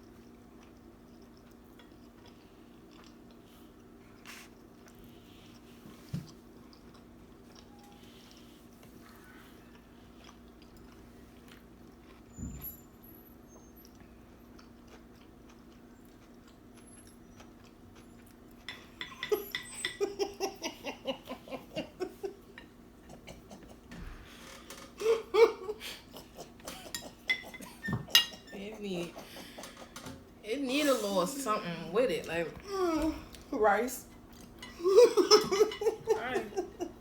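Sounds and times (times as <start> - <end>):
quiet chewing: 0.0 - 12.4, 13.5 - 25.1, 32.6 - 35.8
person laughing: 20.0 - 22.5, 25.0 - 27.9, 34.8 - 37.0.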